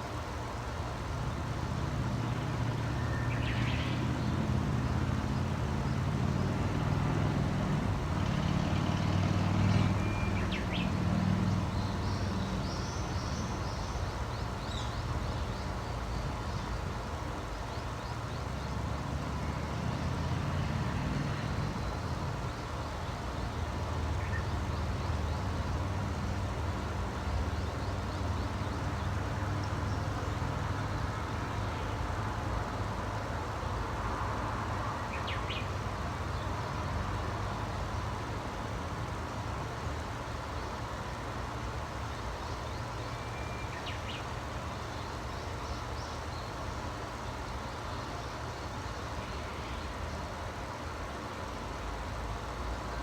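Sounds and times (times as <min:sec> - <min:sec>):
faint bird chirps: 0:09.7 - 0:11.0, 0:42.4 - 0:46.6.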